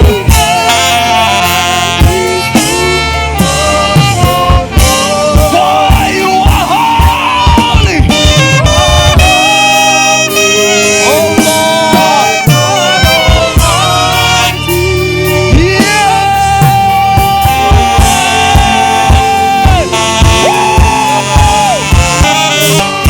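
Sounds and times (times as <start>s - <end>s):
gospel worship band: 0.0s - 23.0s
lead melody of held notes: 0.0s - 23.0s.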